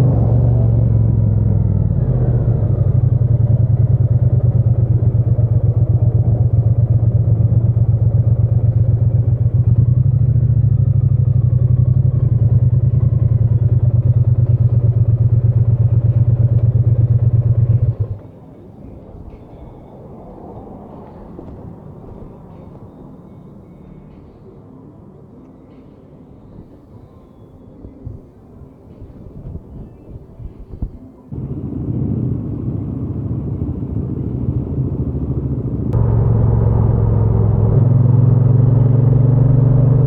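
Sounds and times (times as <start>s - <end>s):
motorcycle engine running: 0.0s - 18.2s, 31.3s - 40.0s
faint background noise: 1.6s - 36.0s.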